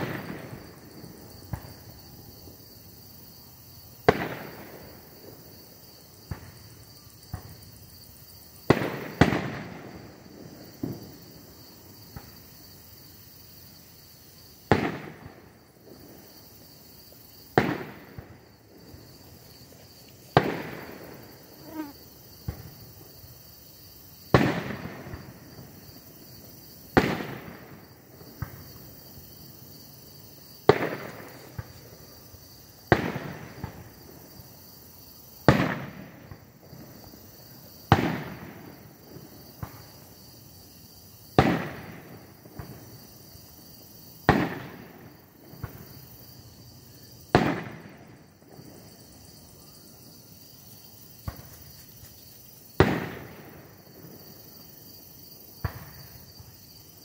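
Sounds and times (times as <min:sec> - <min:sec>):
small fireworks pops: 0:00.0 - 0:02.0, 0:04.0 - 0:05.6, 0:06.2 - 0:07.7, 0:08.6 - 0:12.6, 0:14.6 - 0:16.5, 0:17.4 - 0:21.3, 0:22.4 - 0:23.0, 0:24.2 - 0:25.8, 0:26.8 - 0:29.2, 0:30.6 - 0:32.2, 0:32.8 - 0:34.2, 0:35.4 - 0:40.2, 0:41.3 - 0:43.1, 0:44.1 - 0:46.3, 0:47.3 - 0:49.0, 0:51.0 - 0:54.4, 0:55.5 - 0:56.6
fireworks bursting with loud bangs: 0:00.0 - 0:02.6, 0:03.9 - 0:05.6, 0:06.2 - 0:07.7, 0:08.6 - 0:12.6, 0:14.5 - 0:21.8, 0:24.3 - 0:25.8, 0:26.8 - 0:29.0, 0:30.6 - 0:34.2, 0:35.4 - 0:40.2, 0:41.3 - 0:43.2, 0:43.9 - 0:46.3, 0:47.1 - 0:49.4, 0:51.0 - 0:51.8, 0:52.6 - 0:54.4, 0:55.5 - 0:56.6.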